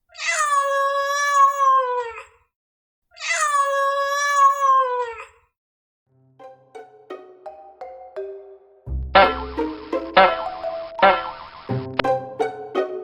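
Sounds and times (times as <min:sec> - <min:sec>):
cat meowing: 0:00.1 - 0:02.4, 0:03.2 - 0:05.4
plucked musical notes: 0:06.2 - 0:13.0.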